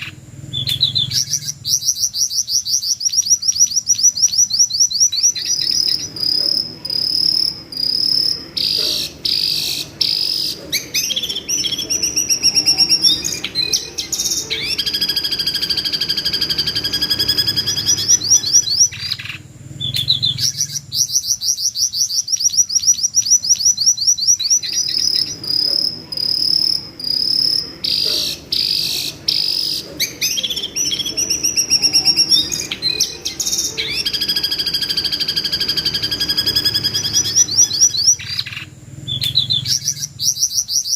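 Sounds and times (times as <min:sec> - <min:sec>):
bird screaming shrill notes: 0:03.4 - 0:19.3, 0:23.5 - 0:38.6.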